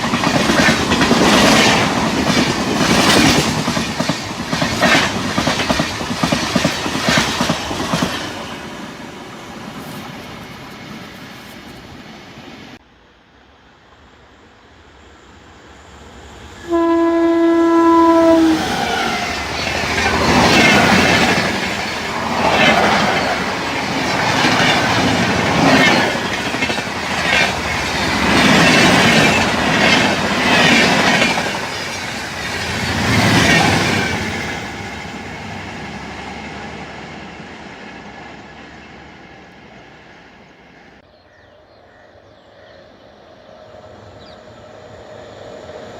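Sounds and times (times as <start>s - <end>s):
train wheels clattering: 0.0s - 8.6s
train horn blast: 16.6s - 19.2s.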